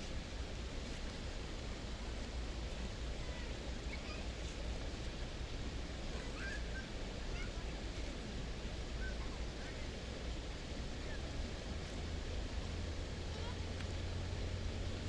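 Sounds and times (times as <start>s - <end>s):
faint bird chirps: 9.0s - 9.4s.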